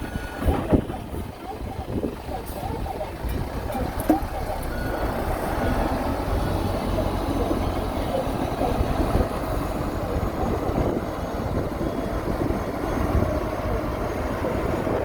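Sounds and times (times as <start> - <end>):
heavy machinery diesel rumble: 0.0 - 15.0.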